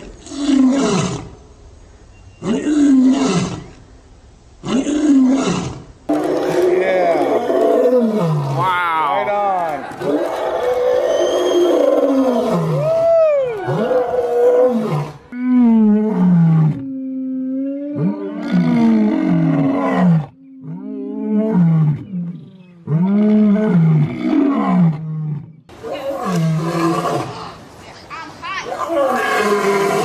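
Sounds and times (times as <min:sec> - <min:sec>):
animal calls rising and falling: 0:06.1 - 0:15.6.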